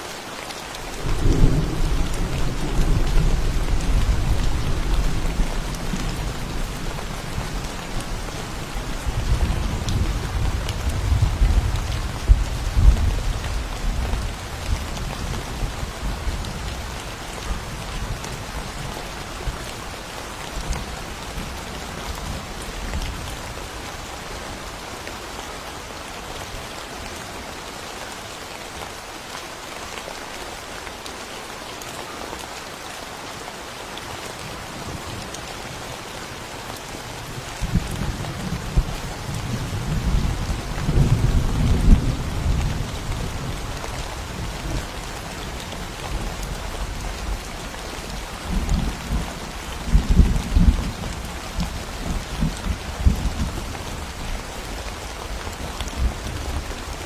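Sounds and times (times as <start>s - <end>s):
rain falling: 0.0s - 57.0s
rolling thunder: 1.0s - 7.9s.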